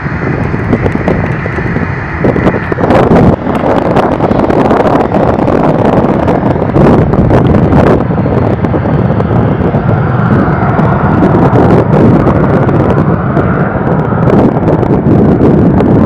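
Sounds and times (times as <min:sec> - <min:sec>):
jet engine roar with whine: 0:00.0 - 0:16.0.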